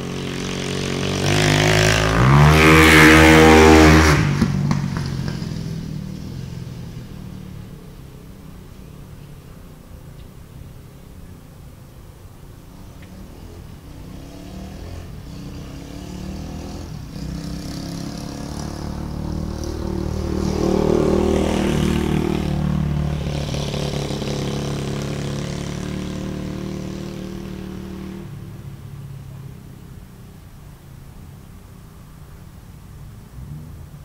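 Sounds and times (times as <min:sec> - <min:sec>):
dirt bike engine passing by: 0:00.0 - 0:08.7, 0:12.7 - 0:30.8.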